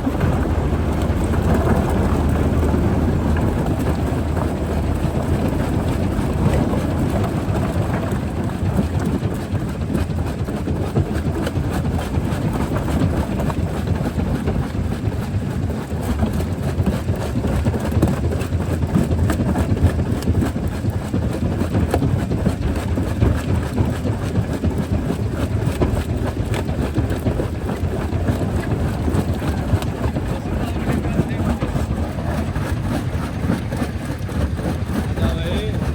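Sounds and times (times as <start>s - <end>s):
jaw crusher rumbling: 0.0s - 35.9s.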